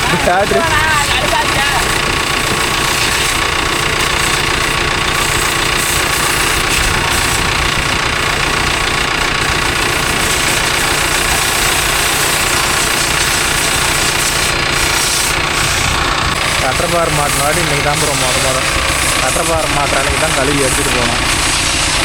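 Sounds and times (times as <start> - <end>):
pressure washer motor hum: 0.0 - 22.0
water spray hissing: 2.6 - 7.6, 9.9 - 22.0.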